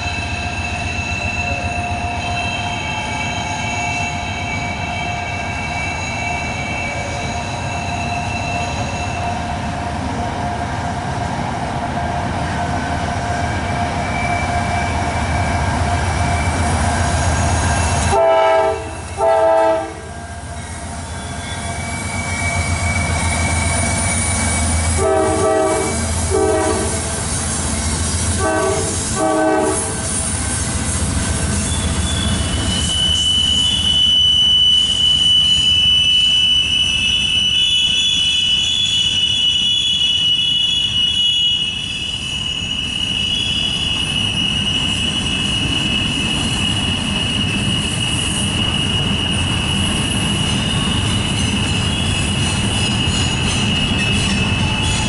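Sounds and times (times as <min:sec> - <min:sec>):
diesel locomotives rumbling: 0:00.0 - 0:55.0
wheel flanges squealing: 0:00.0 - 0:55.0
locomotive air horn blasts: 0:18.1 - 0:20.2, 0:24.9 - 0:27.2, 0:28.3 - 0:30.2.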